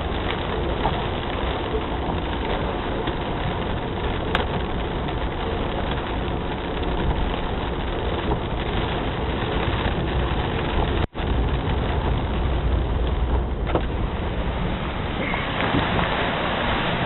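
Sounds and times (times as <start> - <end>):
heavy rain: 0.0 - 17.0
low rumble: 9.7 - 17.0.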